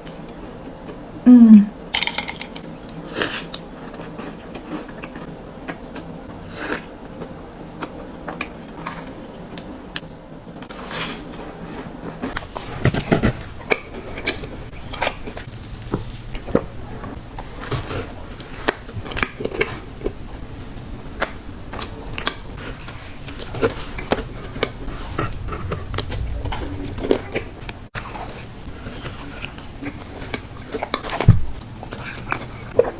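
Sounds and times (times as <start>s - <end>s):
biting and chewing cookies: 2.0s - 32.9s.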